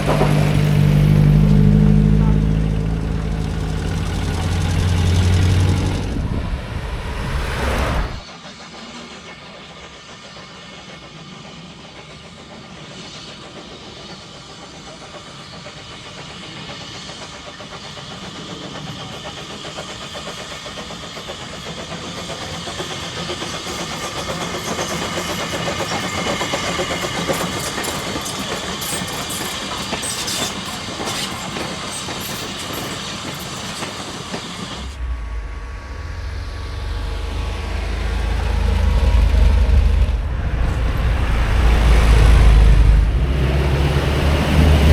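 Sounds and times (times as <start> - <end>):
heavy low rumble: 0.0 - 8.2, 34.9 - 44.9
train running on the line: 0.0 - 44.9.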